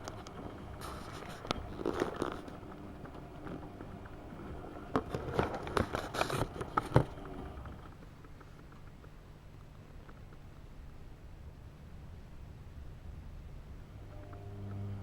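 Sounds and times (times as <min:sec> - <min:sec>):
washing machine drum humming: 0:00.0 - 0:09.0.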